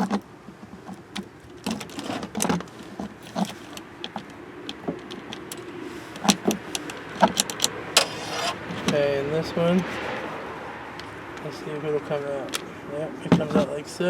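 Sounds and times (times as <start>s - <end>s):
plastic parts clicking: 0.8s - 9.0s.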